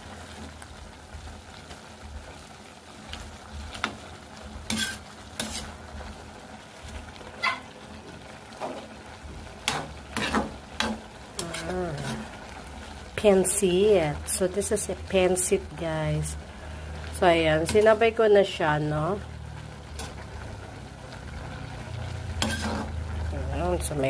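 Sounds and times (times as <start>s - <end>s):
low steady sizzle: 0.0s - 24.0s
utensil scraping a pan: 4.7s - 5.8s, 9.6s - 12.4s, 22.4s - 23.0s.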